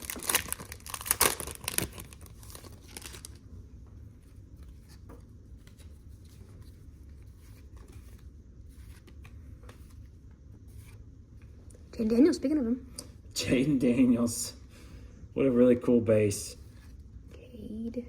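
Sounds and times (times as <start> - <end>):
foil wrapper crinkling and tearing: 0.0 - 3.4.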